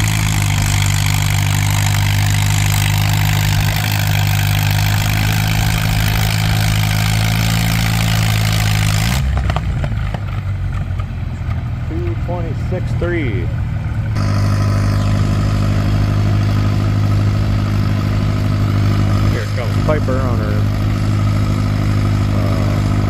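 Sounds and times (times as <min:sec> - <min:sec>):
tractor engine running hard: 0:00.0 - 0:23.0.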